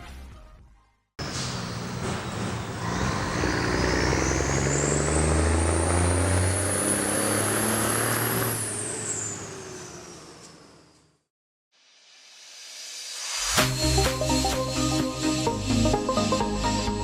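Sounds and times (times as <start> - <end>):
diesel truck engine pulling hard: 1.2 - 11.0.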